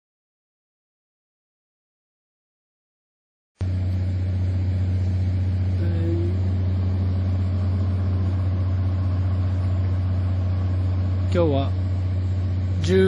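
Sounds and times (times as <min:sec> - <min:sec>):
engine low drone: 0:03.6 - 0:13.0.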